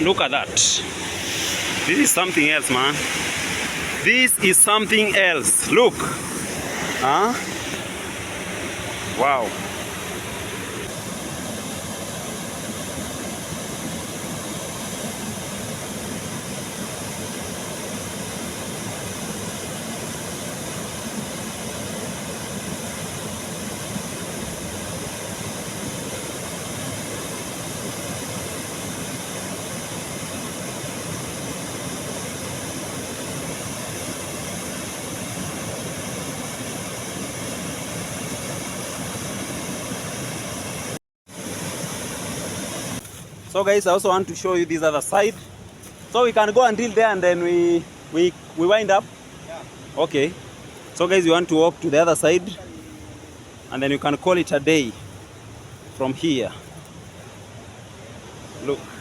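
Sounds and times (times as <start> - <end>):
waterfall rushing: 0.0 - 45.4.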